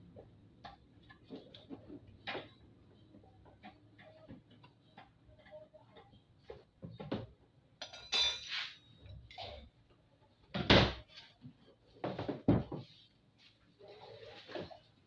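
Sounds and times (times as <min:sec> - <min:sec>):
metal tools clinking and knocking: 0:07.8 - 0:08.8.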